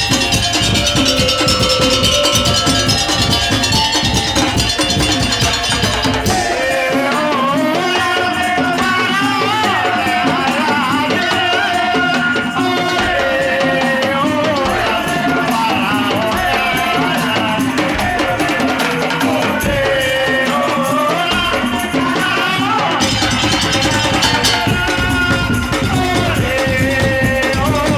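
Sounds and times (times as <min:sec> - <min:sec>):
wavering melody line: 0:00.0 - 0:06.6
drums: 0:00.0 - 0:27.9.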